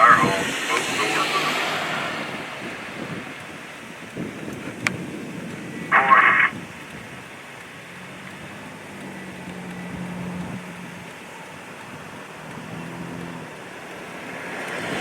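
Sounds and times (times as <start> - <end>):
two-way radio burst: 0.0 - 2.6, 5.9 - 6.6
vehicle road noise: 0.0 - 15.0.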